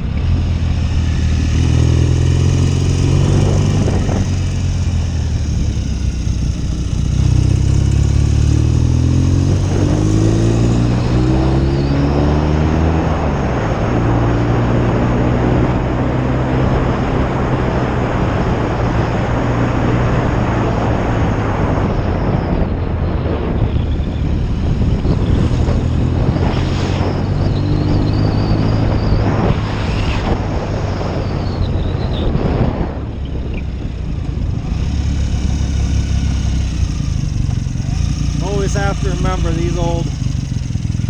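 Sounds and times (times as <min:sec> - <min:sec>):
motorcycle engine running: 0:00.0 - 0:21.4, 0:32.8 - 0:41.0
wind rushing over microphone: 0:00.0 - 0:41.0.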